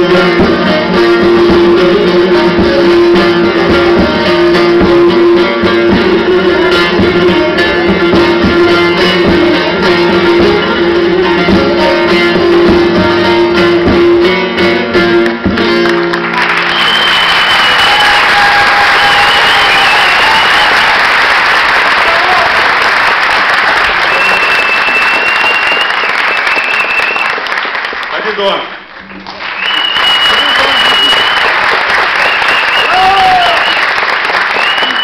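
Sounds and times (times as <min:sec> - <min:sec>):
plucked string instrument music: 0:00.0 - 0:16.6
audience applause: 0:15.7 - 0:35.0.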